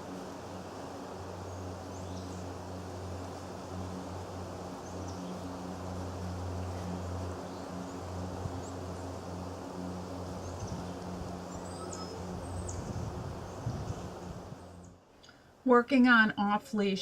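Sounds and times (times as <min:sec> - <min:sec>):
steady low hum: 0:00.0 - 0:17.0
faint bird chirps: 0:11.6 - 0:12.9.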